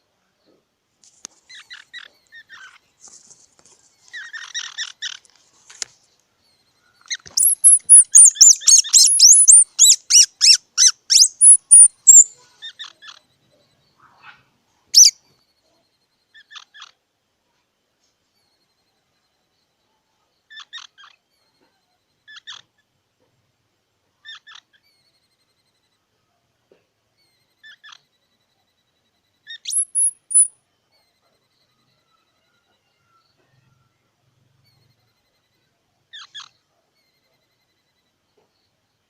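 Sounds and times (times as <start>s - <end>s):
squirrel squeaking and chirping: 1.3s - 5.9s, 6.6s - 13.2s, 15.0s - 15.2s, 29.4s - 30.5s, 36.1s - 37.6s.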